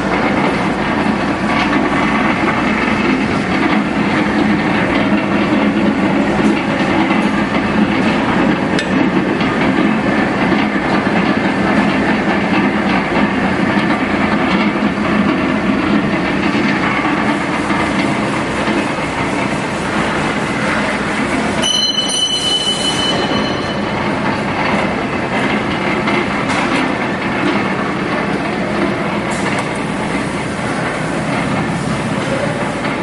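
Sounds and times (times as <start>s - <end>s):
mixer mechanical rumble and rattle: 0.0s - 33.0s.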